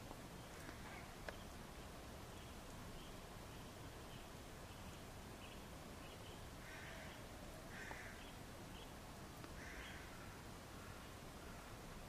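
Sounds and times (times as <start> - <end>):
rasping bird calls: 0.5 - 1.5, 9.6 - 11.8.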